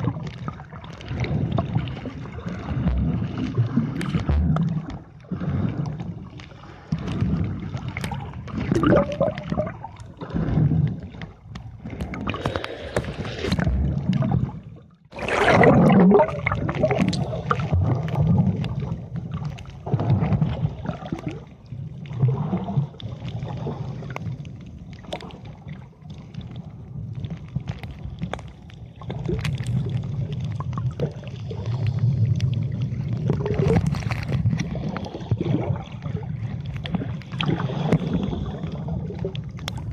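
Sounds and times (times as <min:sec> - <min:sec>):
water sloshing and gurgling: 0:00.0 - 0:39.9.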